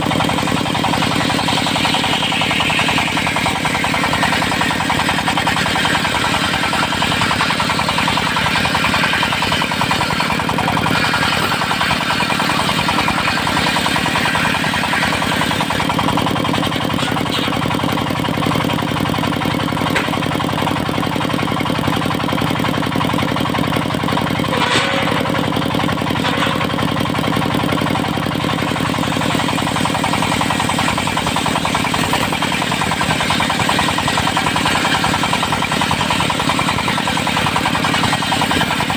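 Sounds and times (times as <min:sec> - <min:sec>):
diesel engine knocking: 0:00.0 - 0:38.9
saw blade hissing: 0:00.1 - 0:15.8.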